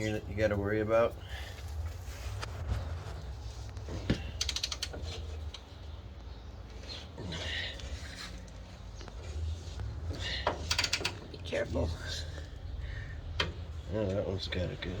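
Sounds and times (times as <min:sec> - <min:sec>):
socket ratchet clicking: 0:04.4 - 0:05.0, 0:10.7 - 0:11.2.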